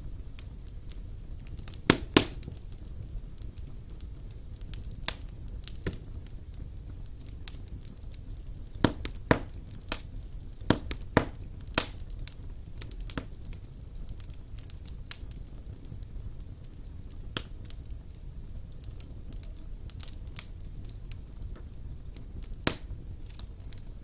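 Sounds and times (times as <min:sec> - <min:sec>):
fire crackling and popping: 0:00.0 - 0:24.0
fire rumbling: 0:00.0 - 0:24.0.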